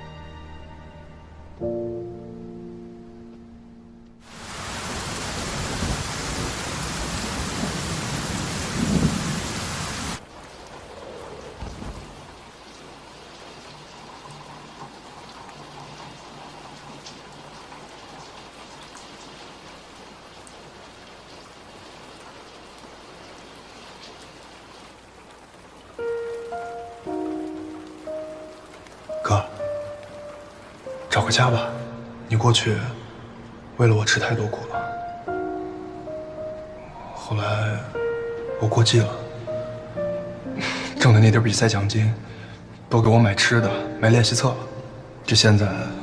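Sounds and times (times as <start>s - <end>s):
soft piano notes: 1.5s - 4.2s, 25.8s - 46.0s
heavy rain pouring: 4.2s - 46.0s
low rumble of thunder: 4.8s - 13.0s.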